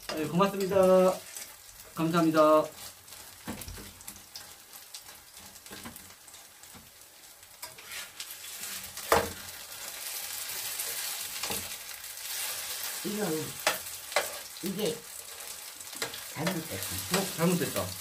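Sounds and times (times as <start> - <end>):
pancakes sizzling in a pan: 0.0 - 18.0
metal turner scraping a pan: 7.6 - 17.6.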